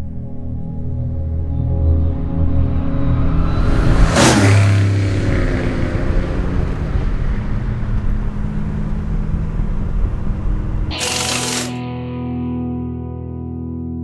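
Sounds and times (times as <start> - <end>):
car engine revving: 4.0 - 11.8.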